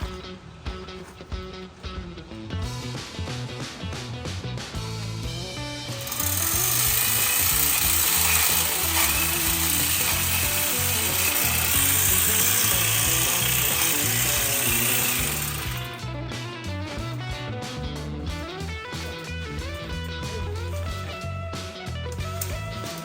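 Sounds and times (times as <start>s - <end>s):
guitar music: 0.0s - 23.0s
power tool cutting vine: 5.9s - 16.0s, 22.2s - 23.0s.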